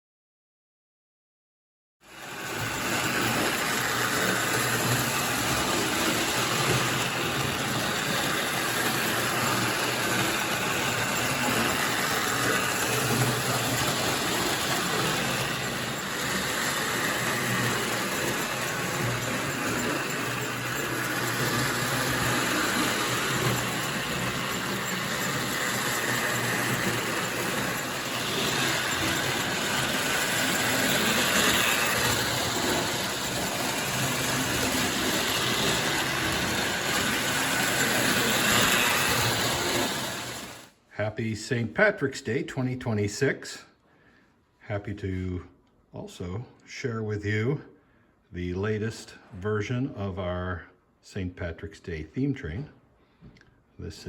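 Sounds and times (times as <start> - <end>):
toy train motor whirring: 2.0 - 40.8.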